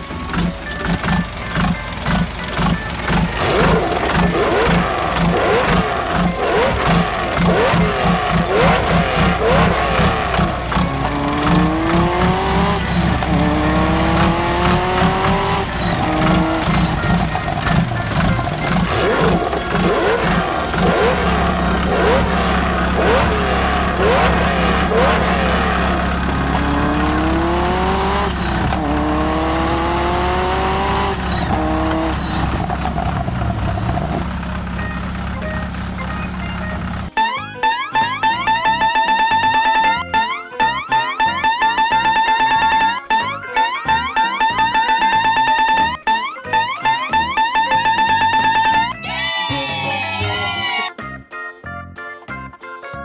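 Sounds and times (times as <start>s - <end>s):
vehicle engine revving: 0.0s - 37.2s
fast background music: 0.0s - 53.0s.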